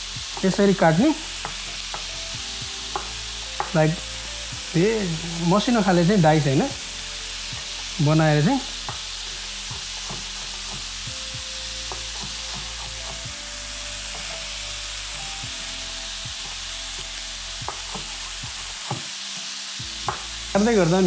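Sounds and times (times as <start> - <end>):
chicken sizzling in oil: 0.0 - 21.0
knife tapping on chopping board: 1.4 - 2.1, 2.9 - 3.8, 9.7 - 10.9, 11.9 - 13.3, 17.7 - 18.1, 18.8 - 19.1, 20.0 - 20.3.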